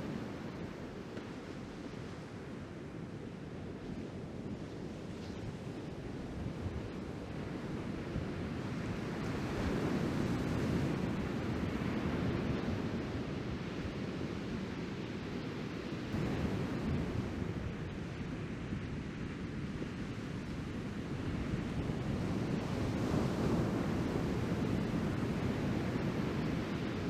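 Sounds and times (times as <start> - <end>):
wind buffeting microphone: 16.0 - 27.0.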